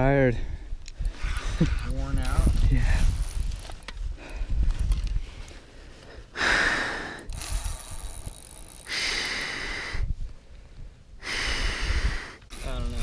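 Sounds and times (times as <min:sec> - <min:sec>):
man breathing heavily: 0:04.0 - 0:07.8, 0:08.8 - 0:12.5.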